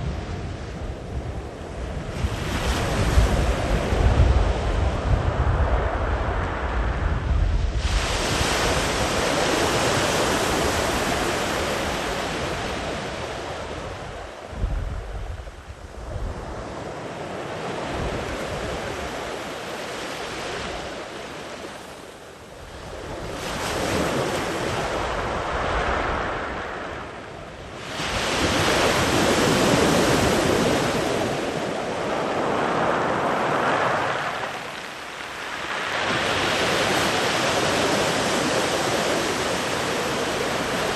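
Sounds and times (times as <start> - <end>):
sea waves breaking on beach: 7.7 - 14.5, 16.3 - 40.9.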